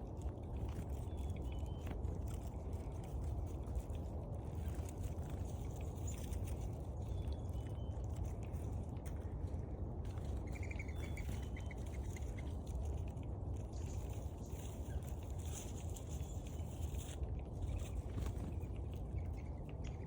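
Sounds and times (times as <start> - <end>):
wind rumble on microphone: 0.0 - 20.0
faint small bird calls: 10.2 - 13.0.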